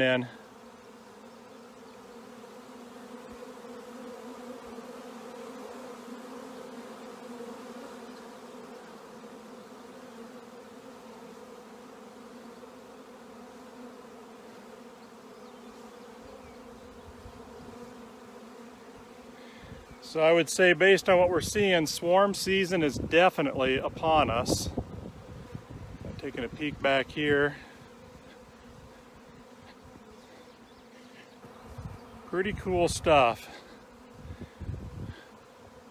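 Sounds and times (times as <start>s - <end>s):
bees buzzing: 0.0s - 35.9s.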